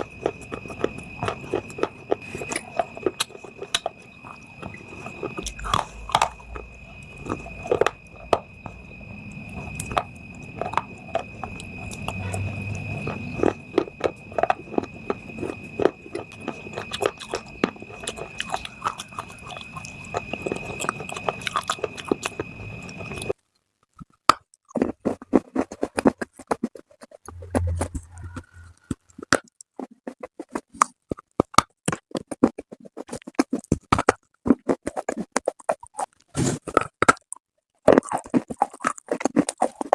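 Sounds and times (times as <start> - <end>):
steady high whine: 0.0 - 23.4, 27.3 - 29.0.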